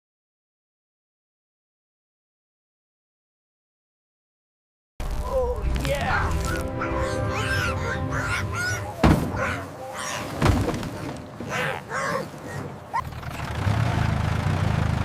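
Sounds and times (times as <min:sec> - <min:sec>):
duck-like quacking calls: 0:06.3 - 0:10.4, 0:11.5 - 0:12.6
thuds: 0:09.0 - 0:09.5, 0:10.3 - 0:11.5.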